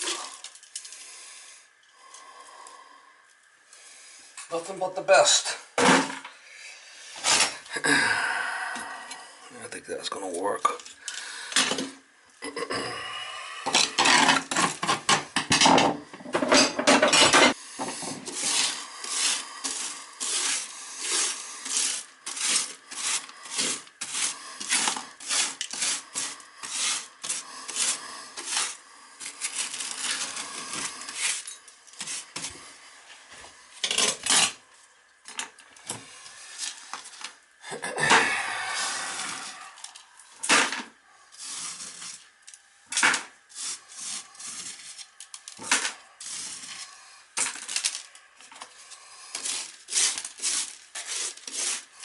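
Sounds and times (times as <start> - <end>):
scraping strokes: 17.4 - 32.7, 41.3 - 42.3, 42.9 - 48.0, 48.6 - 52.0.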